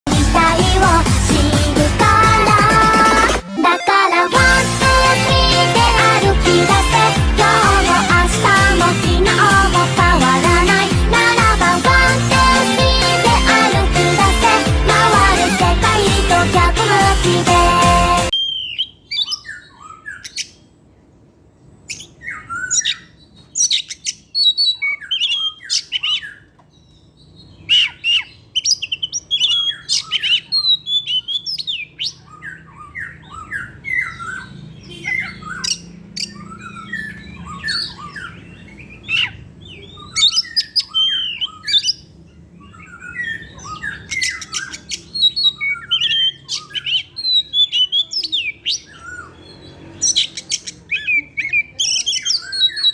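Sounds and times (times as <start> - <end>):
bird singing varied phrases: 18.3 - 21.0, 21.6 - 52.9.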